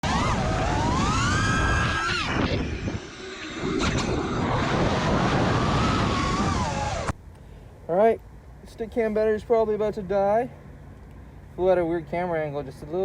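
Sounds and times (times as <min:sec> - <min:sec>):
drone motors whining: 0:00.0 - 0:07.2
low wind rumble: 0:00.0 - 0:13.0.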